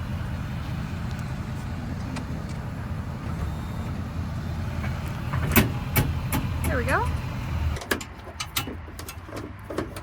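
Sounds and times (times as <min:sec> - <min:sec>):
vehicle engine running low: 0:00.0 - 0:10.0.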